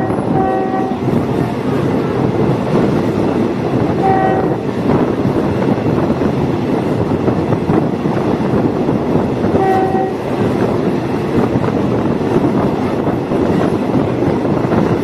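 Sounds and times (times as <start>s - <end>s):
train rumbling along track: 0.0s - 15.0s.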